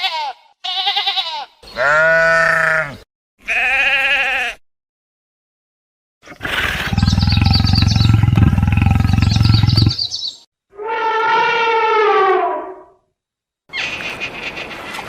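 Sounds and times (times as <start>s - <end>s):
wavering bleat-like animal call: 0.0s - 4.6s
low pulsing roar-like call: 6.4s - 10.0s.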